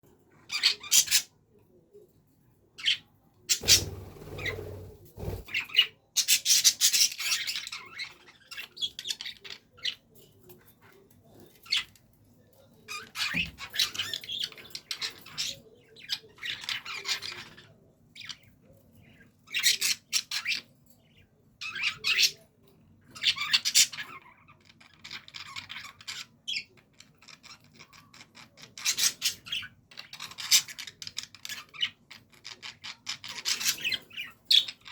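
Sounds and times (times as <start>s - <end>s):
budgerigars chattering and squawking: 0.4s - 1.3s, 2.8s - 10.0s, 12.9s - 18.4s, 19.5s - 20.7s, 21.6s - 22.4s, 23.1s - 34.9s.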